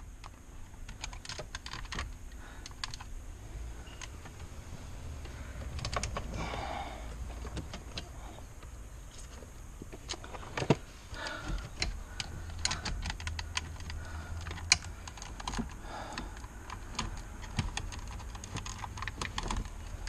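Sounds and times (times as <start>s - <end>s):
plastic trim clicking and knocking: 10.0s - 20.0s.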